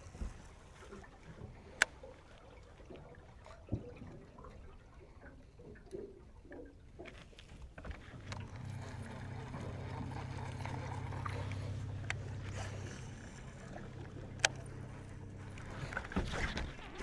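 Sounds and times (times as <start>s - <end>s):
electric motor humming: 8.2s - 16.8s.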